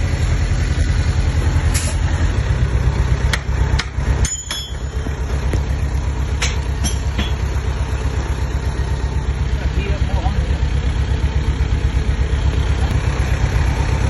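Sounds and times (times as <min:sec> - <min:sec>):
bulldozer diesel engine running: 0:00.0 - 0:14.0.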